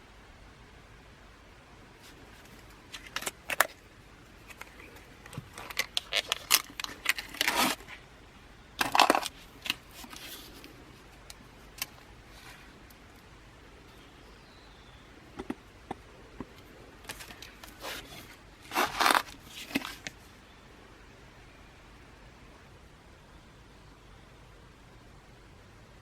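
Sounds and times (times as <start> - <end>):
small hard objects clinking: 8.8 - 10.3.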